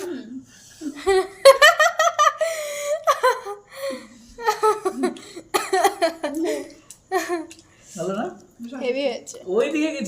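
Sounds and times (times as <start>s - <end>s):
people laughing loudly: 0.9s - 3.7s, 4.4s - 7.5s.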